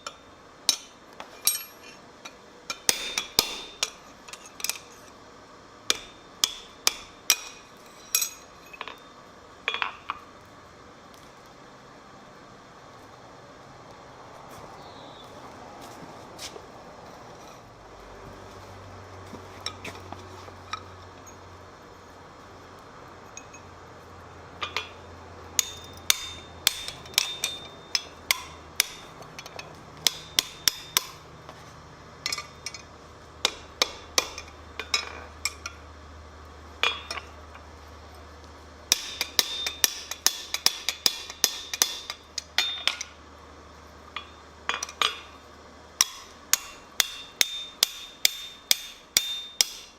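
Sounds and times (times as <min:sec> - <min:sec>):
low steady hum: 0:00.0 - 0:10.8
hammer striking steel on anvil: 0:02.8 - 0:04.0, 0:25.6 - 0:29.1, 0:30.0 - 0:31.2, 0:38.9 - 0:43.0, 0:46.0 - 0:49.9.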